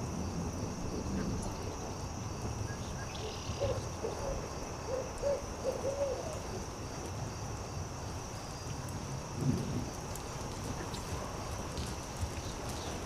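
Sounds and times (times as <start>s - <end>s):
campfire hiss and crackle: 0.0s - 13.0s
high insect drone: 0.0s - 13.0s
owl hooting: 3.6s - 6.4s.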